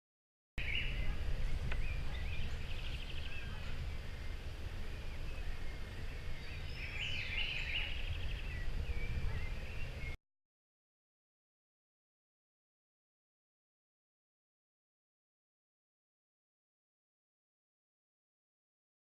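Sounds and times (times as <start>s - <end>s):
bird trills: 0.6s - 10.2s
birds chirping: 0.6s - 10.2s.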